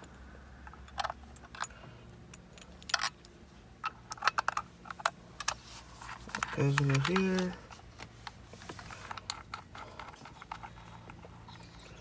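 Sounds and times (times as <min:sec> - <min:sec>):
faint low hum: 0:00.0 - 0:12.0
plastic cable clicks and rattles: 0:06.3 - 0:08.1.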